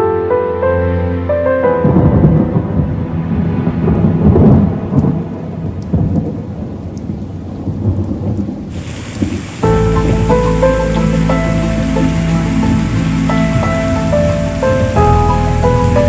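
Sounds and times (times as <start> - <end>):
soft music: 0.0 - 6.4, 9.6 - 16.0
rain: 0.8 - 16.0
thunder rumbling: 1.6 - 16.0
faint raindrop ticks: 4.9 - 11.5.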